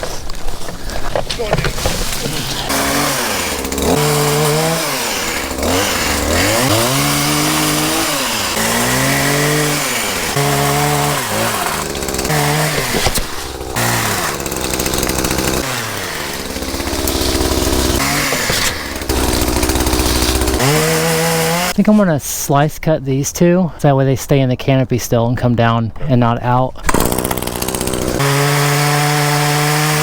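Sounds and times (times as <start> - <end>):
chainsaw revving and idling: 1.2 - 21.8, 26.8 - 30.0.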